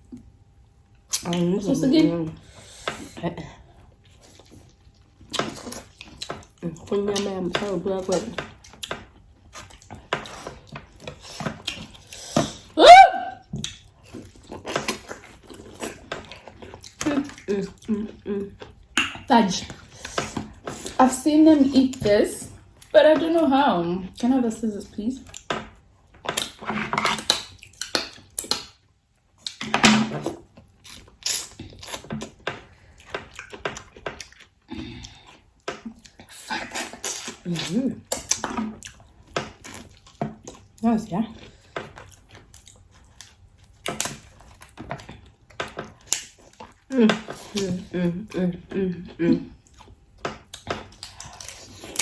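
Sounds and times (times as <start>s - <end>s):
chewing: 3.7s - 12.8s, 13.4s - 21.0s, 29.4s - 40.8s, 41.4s - 52.0s
food crunching and crackling: 3.8s - 12.8s, 13.4s - 21.0s, 25.2s - 47.9s, 49.0s - 52.0s
short high yelp: 12.8s - 13.4s.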